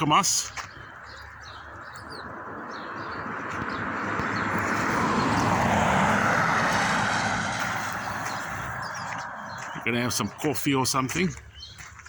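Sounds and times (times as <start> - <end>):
birds chirping: 0.0 - 12.0
vehicle passing by: 1.5 - 10.9.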